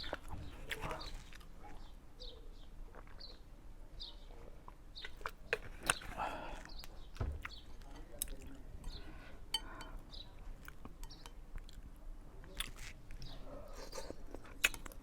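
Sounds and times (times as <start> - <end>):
eating sounds: 0.0 - 3.5, 4.2 - 15.0
small bird chirping: 0.5 - 4.4, 6.7 - 7.9
spoon clinking on bowl: 8.8 - 10.0, 11.0 - 11.4.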